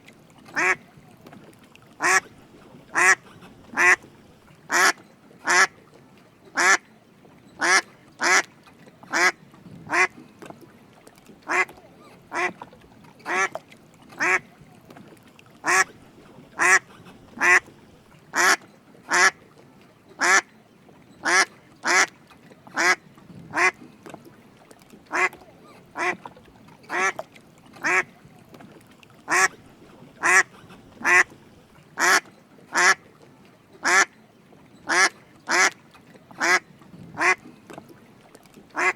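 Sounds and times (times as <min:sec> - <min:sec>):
duck quacking: 0:00.6 - 0:00.8, 0:02.0 - 0:02.3, 0:02.9 - 0:04.1, 0:04.7 - 0:05.7, 0:11.5 - 0:11.7, 0:12.3 - 0:12.6, 0:14.2 - 0:14.4, 0:15.6 - 0:16.0, 0:16.6 - 0:17.8, 0:18.4 - 0:19.4, 0:20.2 - 0:20.4, 0:22.8 - 0:23.8, 0:25.1 - 0:25.4, 0:26.0 - 0:26.2, 0:26.9 - 0:27.2, 0:27.8 - 0:28.1, 0:29.3 - 0:29.6, 0:30.2 - 0:31.4, 0:32.0 - 0:33.0, 0:33.8 - 0:34.1, 0:34.9 - 0:35.7, 0:36.4 - 0:36.6, 0:37.2 - 0:37.4.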